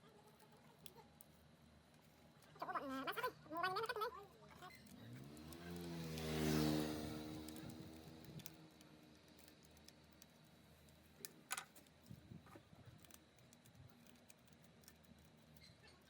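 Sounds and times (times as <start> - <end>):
faint clicks and taps: 7.4 - 16.0.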